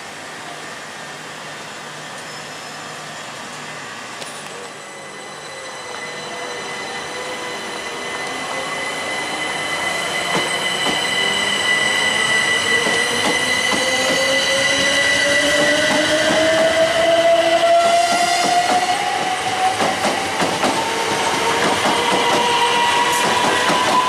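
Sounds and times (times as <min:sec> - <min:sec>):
electric train whine: 0:00.0 - 0:24.0
train wheels clicking on rails: 0:10.2 - 0:11.8, 0:12.4 - 0:24.0.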